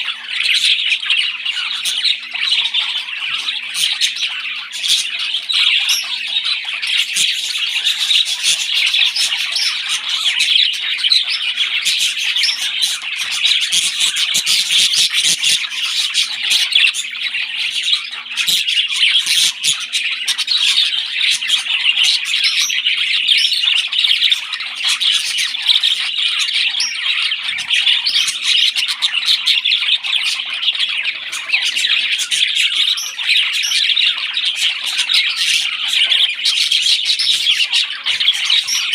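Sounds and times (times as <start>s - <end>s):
parrots squawking and chirping: 0.0s - 38.9s.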